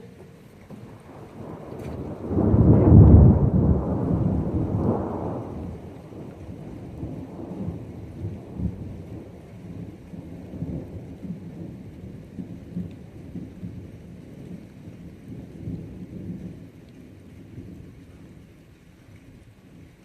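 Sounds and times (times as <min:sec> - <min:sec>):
steady rain: 0:00.0 - 0:20.0
rolling thunder: 0:00.6 - 0:18.7.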